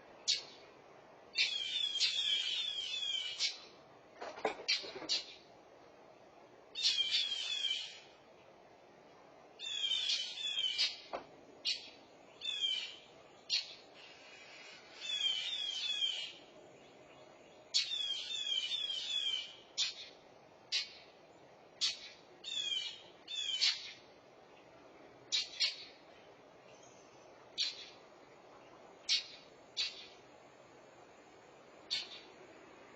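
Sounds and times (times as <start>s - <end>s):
birds giving alarm calls: 1.3s - 3.7s, 6.8s - 8.1s, 9.6s - 16.4s, 17.7s - 21.1s, 21.8s - 24.0s, 25.3s - 26.0s, 27.5s - 28.0s, 29.0s - 30.2s, 31.9s - 32.3s.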